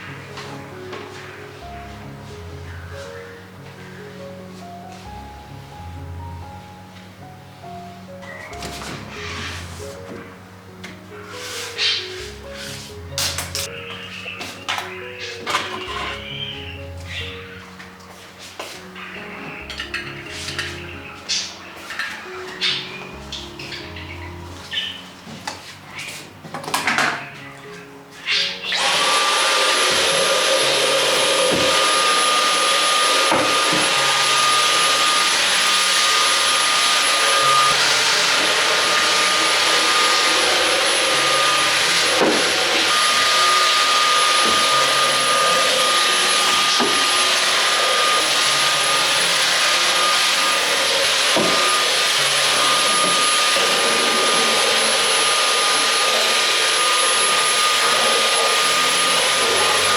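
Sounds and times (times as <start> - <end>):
vacuum cleaner motor whine: 27.1 - 59.9.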